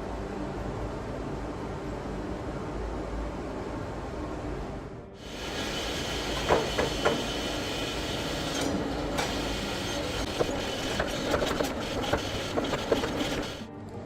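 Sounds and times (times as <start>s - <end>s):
workshop machine noise: 5.2s - 13.8s.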